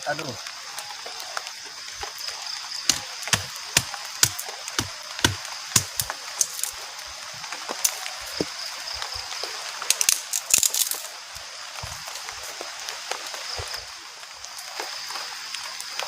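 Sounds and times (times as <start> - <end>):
rain drops tapping on a roof: 0.0 - 16.0
steady rain hiss: 0.0 - 16.0.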